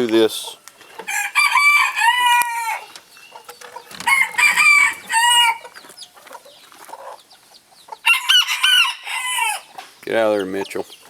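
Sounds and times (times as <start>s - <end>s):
chickens clucking softly: 0.1s - 8.6s
rooster crowing: 1.1s - 2.9s, 3.9s - 5.8s, 8.0s - 9.7s.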